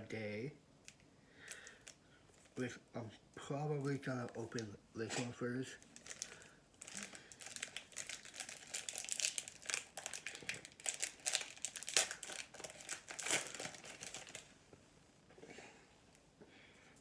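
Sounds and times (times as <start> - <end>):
foil card pack crinkling: 1.4 - 2.6, 5.7 - 14.5.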